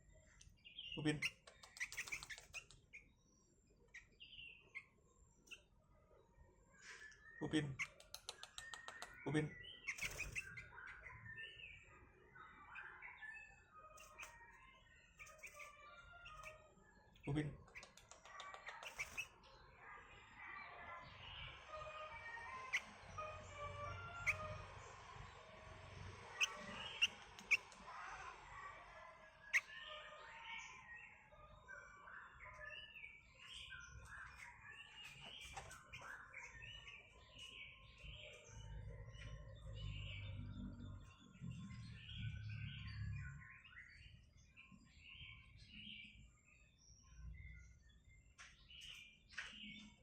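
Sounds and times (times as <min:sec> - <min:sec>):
sharp clicks: 0:07.8 - 0:09.2.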